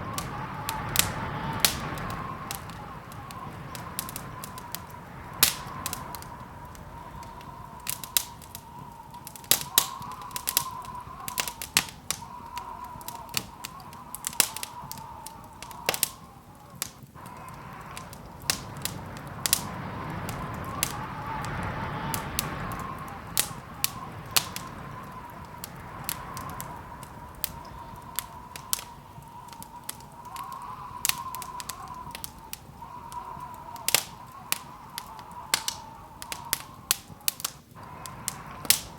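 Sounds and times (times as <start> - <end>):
rush of noise: 0.0 - 38.9
wood fire crackling: 0.0 - 38.9.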